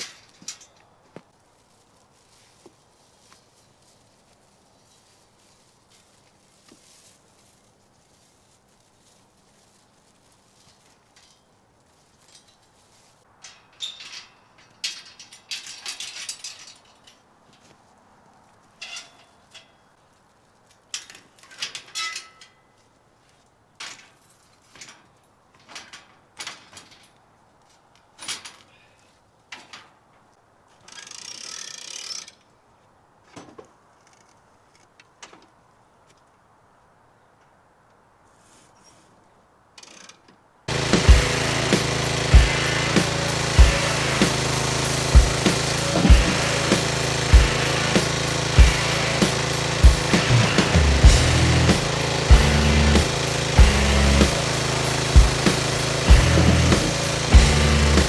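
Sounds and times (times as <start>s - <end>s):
short rustling burst: 40.7s - 58.0s.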